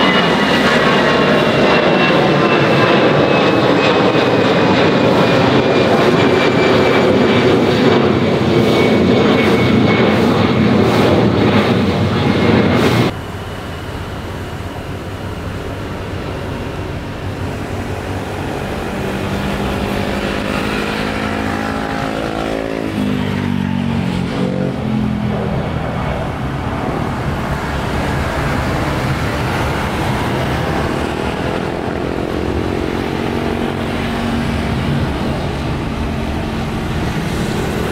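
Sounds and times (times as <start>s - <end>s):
aircraft passing: 0.0s - 37.9s
jet engines whining: 0.0s - 37.9s.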